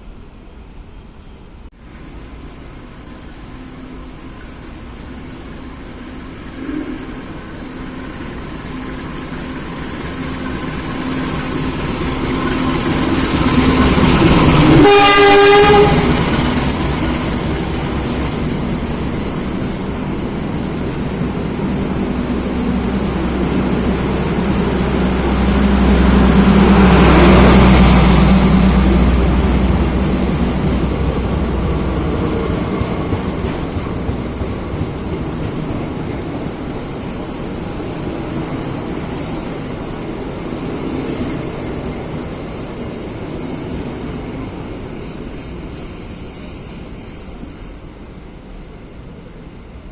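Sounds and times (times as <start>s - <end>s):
train rumble: 0.0s - 49.9s
locomotive horn blast: 14.6s - 16.3s.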